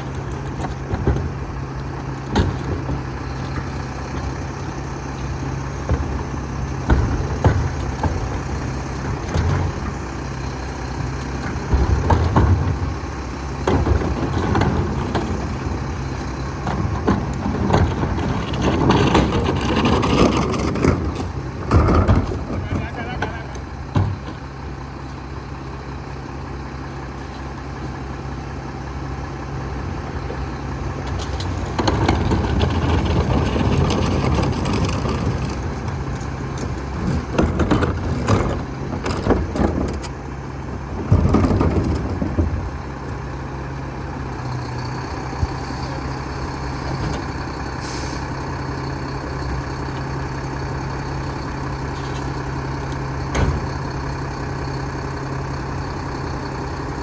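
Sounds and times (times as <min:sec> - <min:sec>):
loud bangs and clatters: 0:00.0 - 0:24.7, 0:31.1 - 0:40.2, 0:40.8 - 0:43.3, 0:44.2 - 0:56.7
diesel engine running: 0:00.0 - 0:57.0
machinery noise: 0:00.0 - 0:57.0.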